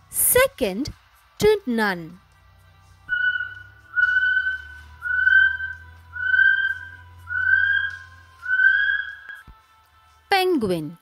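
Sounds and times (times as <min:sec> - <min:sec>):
kiwi shrill whistles: 0:03.1 - 0:09.4.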